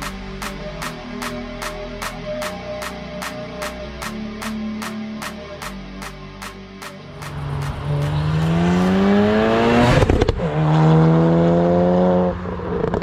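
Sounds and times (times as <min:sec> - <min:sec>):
car engine accelerating: 0:07.0 - 0:13.0.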